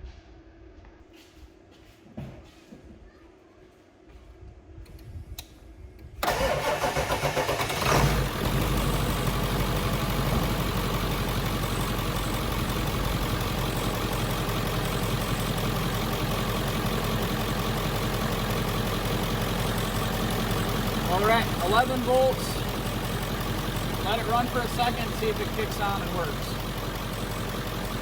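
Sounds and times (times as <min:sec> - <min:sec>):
diesel engine starting and idling: 0:06.2 - 0:28.0.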